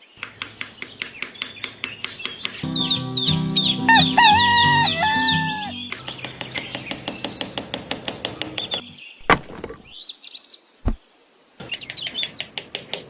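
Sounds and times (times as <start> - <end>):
small birds chirping: 0.0 - 13.0
rapid even tapping: 0.2 - 2.7, 5.8 - 8.9.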